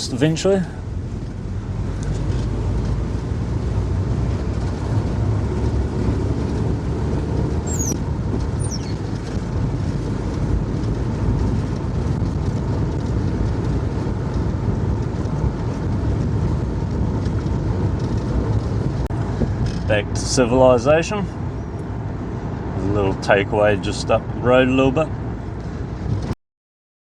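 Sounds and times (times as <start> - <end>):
engine and tyre rumble: 0.0 - 26.4
high chirps: 7.7 - 8.0, 8.6 - 9.2.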